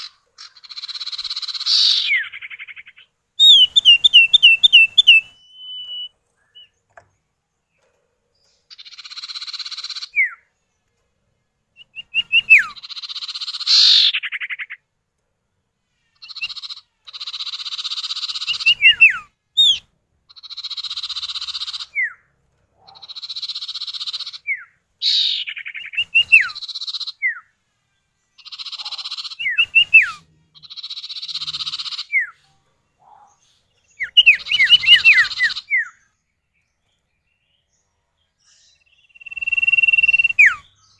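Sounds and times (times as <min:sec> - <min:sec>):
bird downward-slurred whistles: 0:03.4 - 0:06.7, 0:39.1 - 0:40.7.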